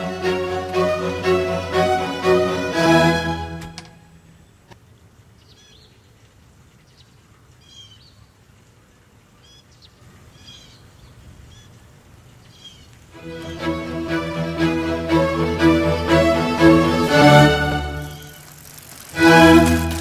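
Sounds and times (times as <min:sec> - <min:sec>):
birds chirping: 0:17.0 - 0:19.1.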